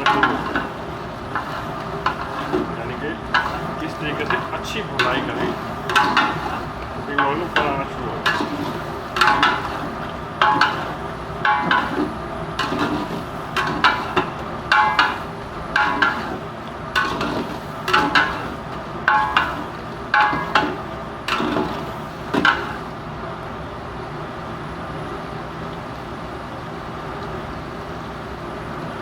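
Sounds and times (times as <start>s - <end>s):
metal ladle scraping a pot: 0.0s - 22.8s
frying sizzle: 0.0s - 29.0s.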